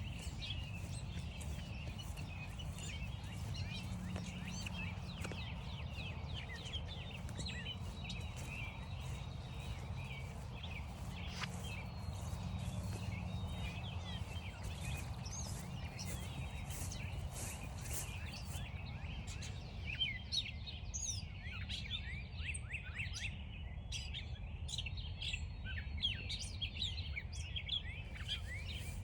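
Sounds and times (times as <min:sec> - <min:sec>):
steady low rumble: 0:00.0 - 0:18.7
birds chirping and singing: 0:00.0 - 0:22.0, 0:27.6 - 0:29.0.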